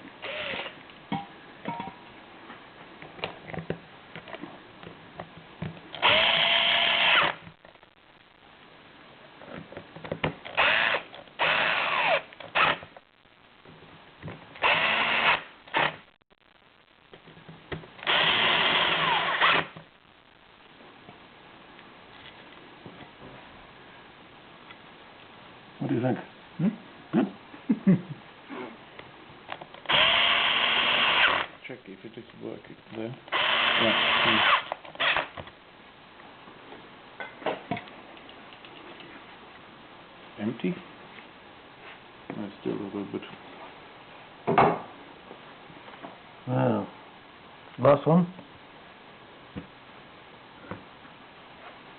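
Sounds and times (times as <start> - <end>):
power drill running: 0.2 - 0.8, 6.0 - 7.4, 10.5 - 12.8, 14.6 - 16.0, 18.0 - 19.7, 29.9 - 31.5, 33.3 - 35.3.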